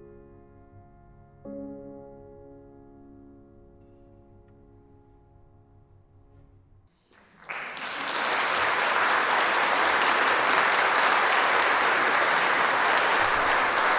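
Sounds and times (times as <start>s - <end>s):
audience applause: 7.1s - 13.9s.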